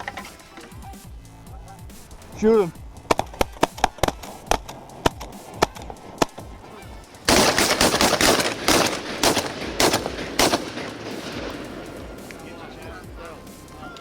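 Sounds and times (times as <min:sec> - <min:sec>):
shotguns firing: 0:03.0 - 0:13.0.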